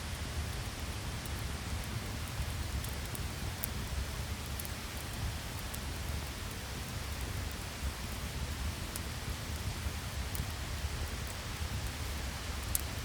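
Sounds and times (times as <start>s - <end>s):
heavy rain: 0.1s - 13.0s
faint scattered ticks: 0.5s - 13.0s.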